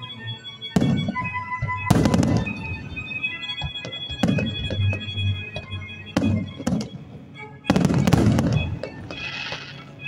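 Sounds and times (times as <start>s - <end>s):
music: 0.0s - 10.0s
fireworks crackling: 0.8s - 5.4s, 7.7s - 10.0s
fireworks bursting: 0.8s - 10.0s.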